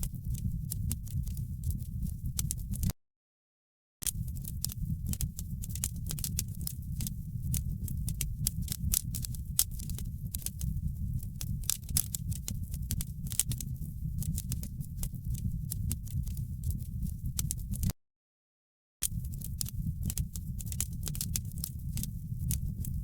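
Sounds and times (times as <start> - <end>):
low rumble of fire: 0.0 - 2.9, 4.0 - 17.9, 19.0 - 23.0
fireplace fire crackling: 4.1 - 17.9, 19.0 - 23.0.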